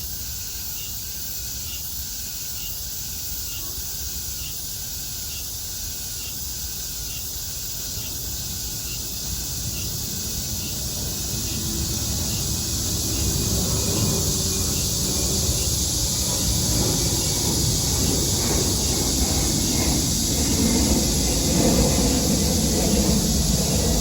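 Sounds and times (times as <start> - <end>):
cicada chorus drone: 0.0 - 24.0
airplane rumble: 8.4 - 24.0.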